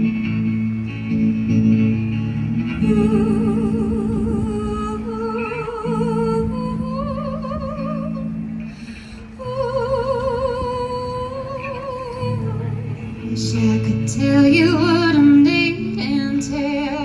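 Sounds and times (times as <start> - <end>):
guitar and bass chords: 0.0 - 17.0
woman singing wordlessly: 2.8 - 8.6, 9.2 - 17.0.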